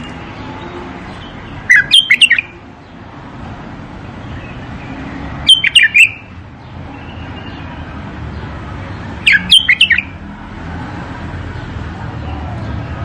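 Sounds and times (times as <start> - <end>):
bird singing: 0.0 - 3.0, 4.2 - 10.2.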